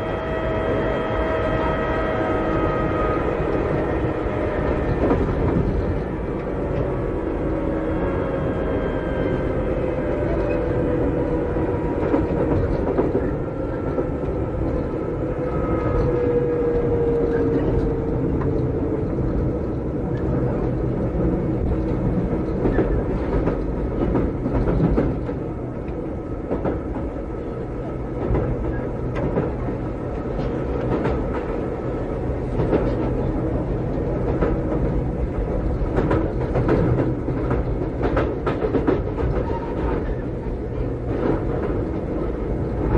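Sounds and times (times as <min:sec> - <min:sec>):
train wheel and motor rumble: 0:00.0 - 0:42.9
rail-joint clicks: 0:15.8 - 0:31.7, 0:32.4 - 0:42.9.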